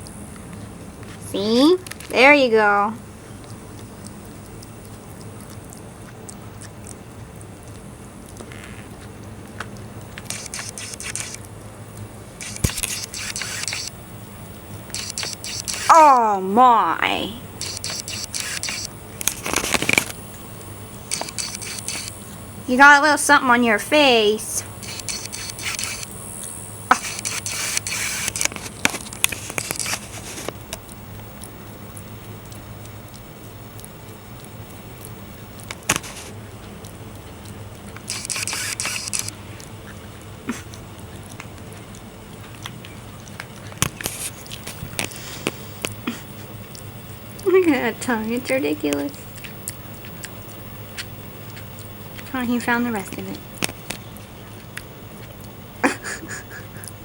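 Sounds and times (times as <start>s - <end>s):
lizard crunching egg: 0.0s - 16.6s, 17.3s - 23.3s, 23.9s - 57.0s
steady low hum: 0.0s - 57.0s
sharp clicks: 9.6s - 11.5s, 12.4s - 14.0s, 14.8s - 16.0s, 17.5s - 20.2s, 21.0s - 22.3s, 24.6s - 30.9s, 38.0s - 39.4s
lizard hissing: 12.4s - 14.0s, 14.9s - 16.4s, 17.2s - 20.2s, 21.1s - 23.4s, 24.0s - 26.2s, 26.9s - 30.6s.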